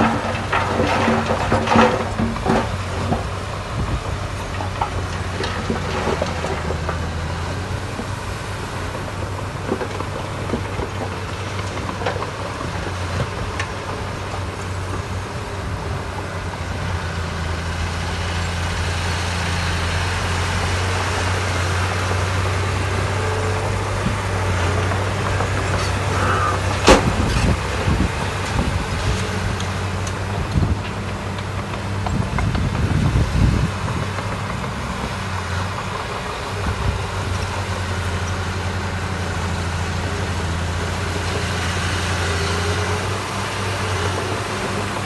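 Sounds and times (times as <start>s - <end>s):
diesel engine humming: 0.0s - 45.0s.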